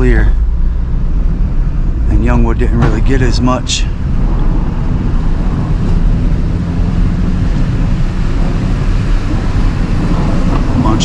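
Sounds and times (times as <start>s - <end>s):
truck engine rumbling: 0.0s - 11.0s
tyre and road noise: 0.0s - 11.0s.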